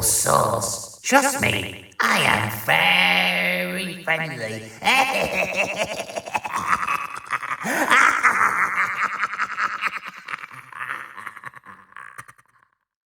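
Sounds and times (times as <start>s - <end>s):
distorted warbling voice: 0.0s - 9.0s.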